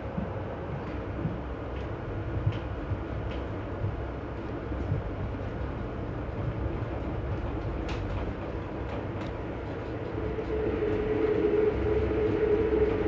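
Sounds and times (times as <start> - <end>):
train rumble: 0.0 - 13.0
steady whine: 9.0 - 13.0.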